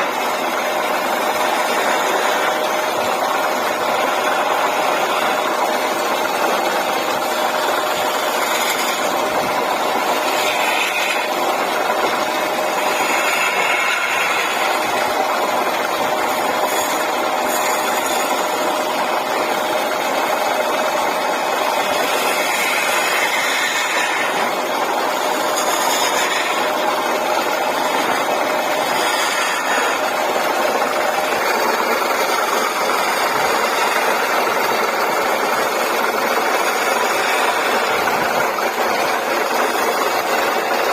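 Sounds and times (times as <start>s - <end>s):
wood lathe humming: 0.0s - 40.9s.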